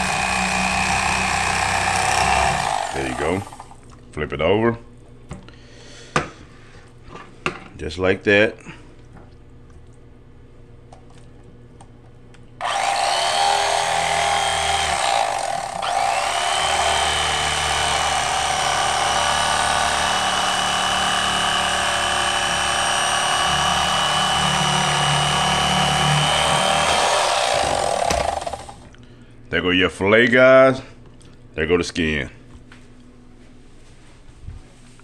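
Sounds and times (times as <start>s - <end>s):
electric fillet knife whining: 0.0s - 3.8s, 12.6s - 28.9s.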